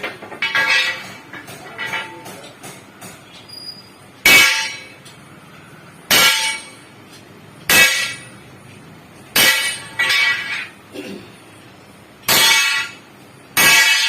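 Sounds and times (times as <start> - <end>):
hammer striking steel spring: 9.4 - 10.7, 12.3 - 13.0, 13.6 - 14.0.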